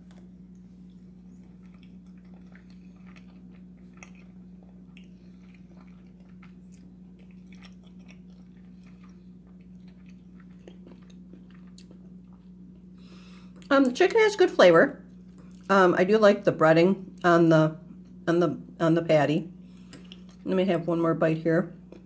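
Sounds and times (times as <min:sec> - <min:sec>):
person chewing: 0:00.0 - 0:13.7, 0:15.1 - 0:15.7, 0:19.7 - 0:20.4
steady low hum: 0:00.0 - 0:22.0.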